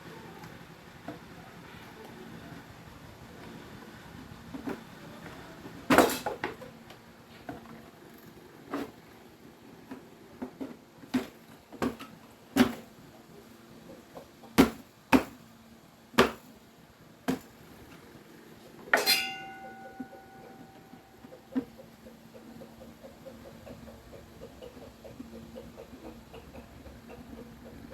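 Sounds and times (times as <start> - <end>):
ringing metallic clink: 19.0 - 21.1
tools knocking and clicking: 19.0 - 21.9.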